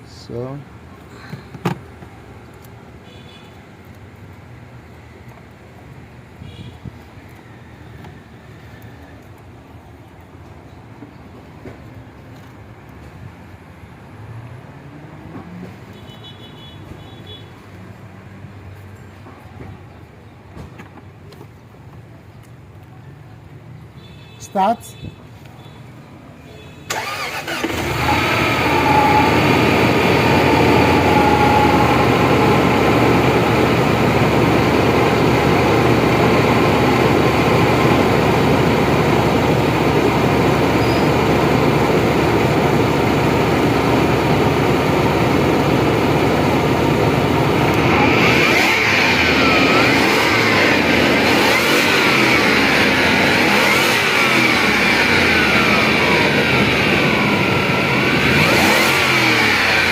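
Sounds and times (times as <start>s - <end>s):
car engine running: 26.9s - 59.9s
wavering engine whine: 26.9s - 59.9s.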